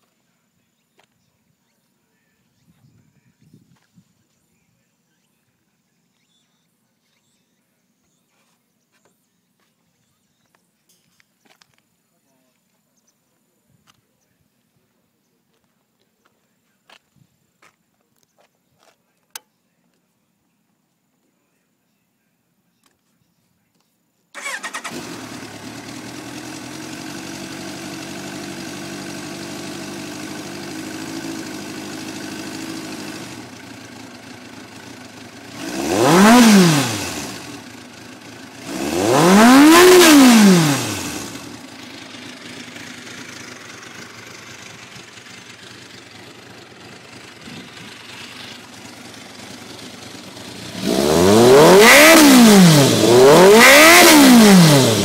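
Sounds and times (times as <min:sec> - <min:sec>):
motorcycle engine idling and revving: 0:24.4 - 0:55.0.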